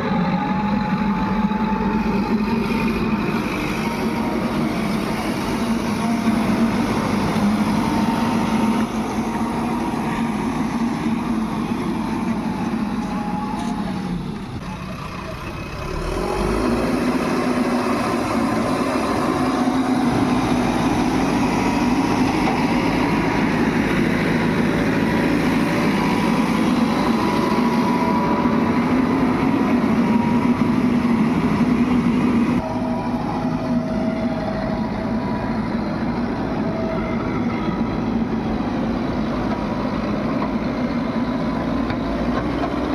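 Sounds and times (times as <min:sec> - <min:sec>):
heavy diesel machinery engines: 0:00.0 - 0:42.9.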